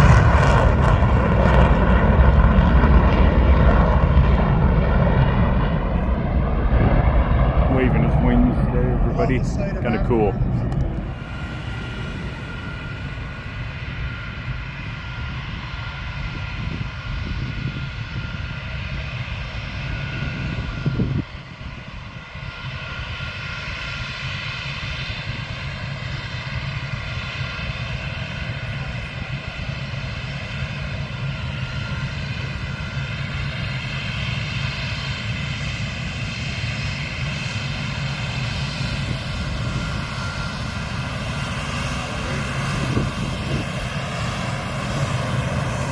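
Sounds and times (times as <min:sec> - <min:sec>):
aircraft engines low rumble: 0:00.0 - 0:45.9
high engine whine: 0:00.0 - 0:45.9
brief low thump: 0:10.6 - 0:11.2.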